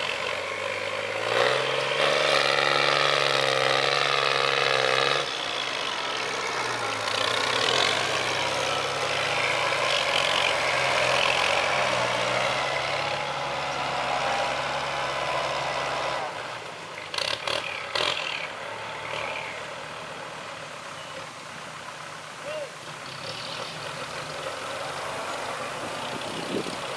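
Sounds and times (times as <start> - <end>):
diesel engine running with whine: 0.0 - 26.9.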